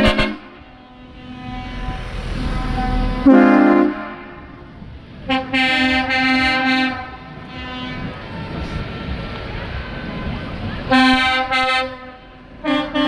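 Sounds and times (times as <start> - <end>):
vehicle horns honking: 0.0 - 8.3, 10.9 - 13.0
low traffic rumble: 0.0 - 13.0.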